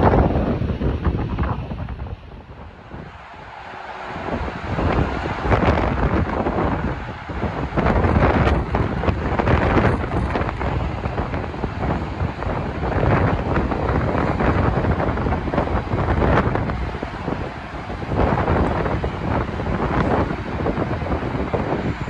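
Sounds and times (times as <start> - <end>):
wind buffeting microphone: 0.0 - 22.0
train passing: 2.2 - 22.0.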